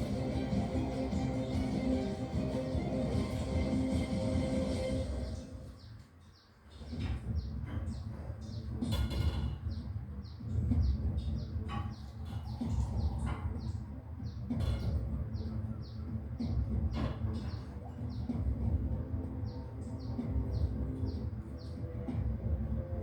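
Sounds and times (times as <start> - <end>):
steady low rumble: 0.0 - 5.6.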